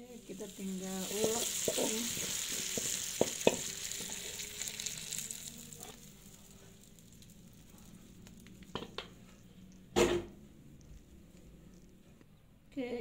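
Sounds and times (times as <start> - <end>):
hot oil sizzling: 0.0 - 11.2.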